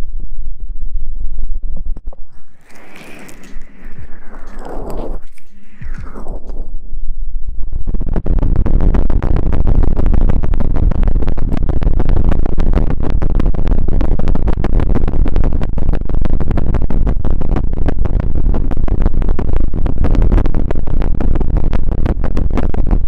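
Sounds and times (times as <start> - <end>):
scratchy rubbing on microphone: 2.1 - 7.0.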